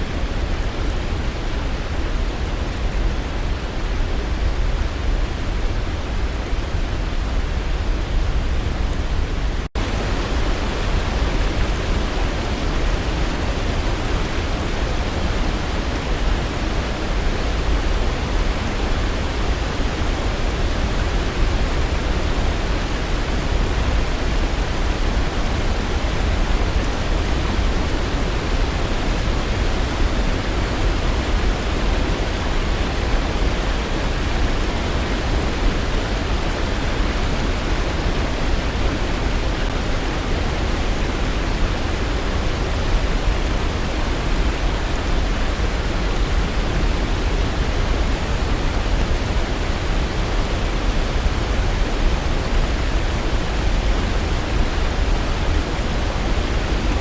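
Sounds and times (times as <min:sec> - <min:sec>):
waterfall rushing: 0:09.8 - 0:57.0.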